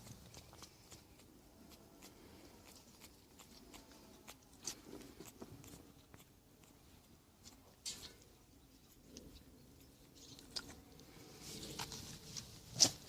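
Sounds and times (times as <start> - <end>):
puppies scuffling and rustling: 10.2 - 13.0.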